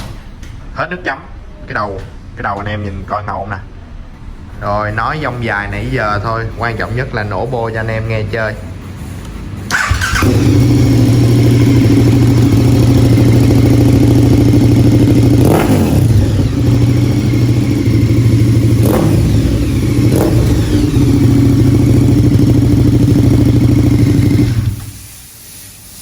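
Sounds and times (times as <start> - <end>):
motorcycle engine running loud: 9.7 - 24.9.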